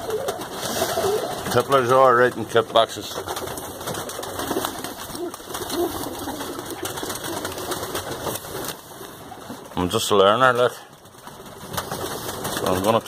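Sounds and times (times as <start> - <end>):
pigeons cooing: 0.0 - 9.8.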